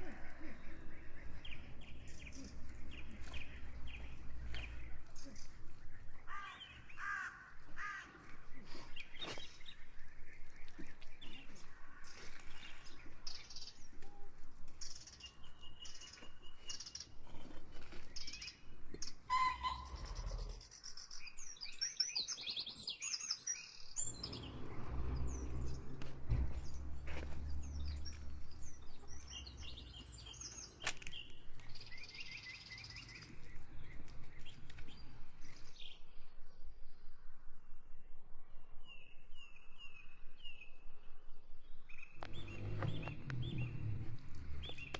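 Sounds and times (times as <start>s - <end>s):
birds chirping: 0.0s - 36.0s, 42.2s - 44.9s
low rumble: 19.7s - 20.7s.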